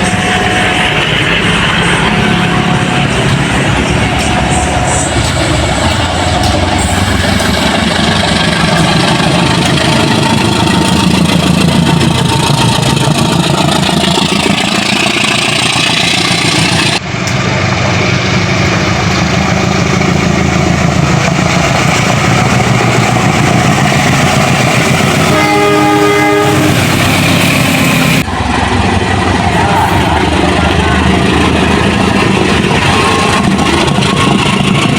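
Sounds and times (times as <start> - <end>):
train running past: 0.0 - 34.9
train horn: 25.0 - 28.2.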